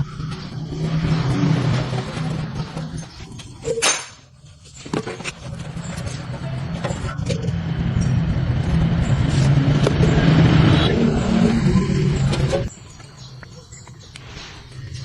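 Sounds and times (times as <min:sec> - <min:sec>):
engine humming: 0:00.0 - 0:03.7, 0:05.1 - 0:12.8.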